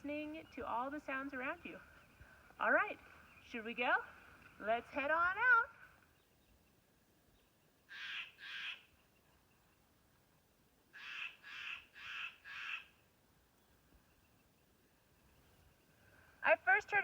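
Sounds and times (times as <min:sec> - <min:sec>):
crow cawing: 0:07.9 - 0:08.9, 0:10.9 - 0:12.9.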